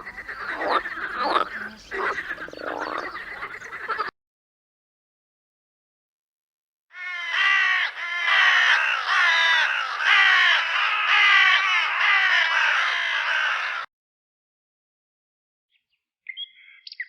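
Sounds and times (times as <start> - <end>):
harsh bird calls: 0.0 - 4.1, 7.0 - 13.9.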